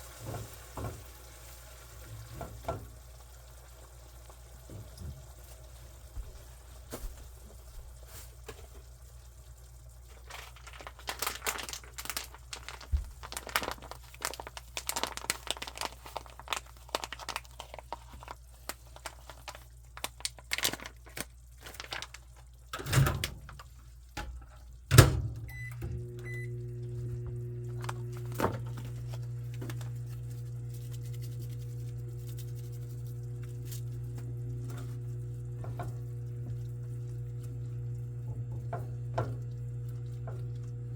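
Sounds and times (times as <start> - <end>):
kitchen appliance humming: 25.3 - 40.9.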